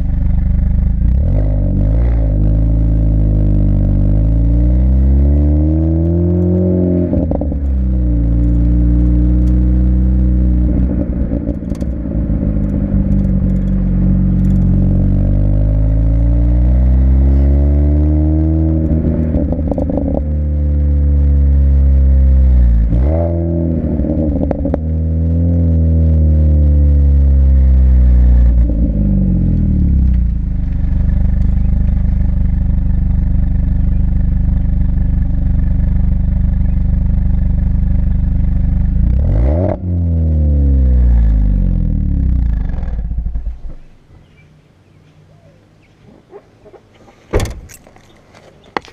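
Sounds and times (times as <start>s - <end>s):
car engine revving: 0.0s - 43.9s
exhaust crackles: 0.0s - 44.0s.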